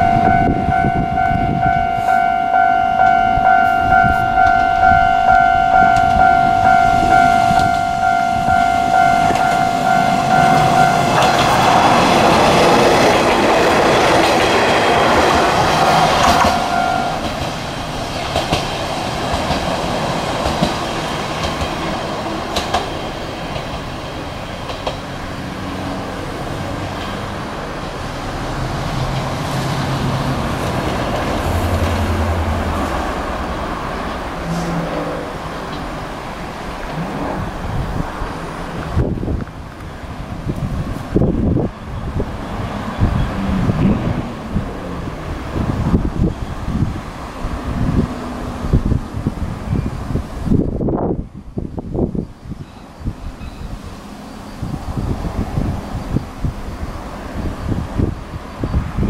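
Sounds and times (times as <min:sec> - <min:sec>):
train rushing past: 0:00.0 - 0:59.0
train wheel clatter: 0:10.5 - 0:25.9
train wheel clicks: 0:10.6 - 0:21.9, 0:22.5 - 0:23.9, 0:24.6 - 0:25.1.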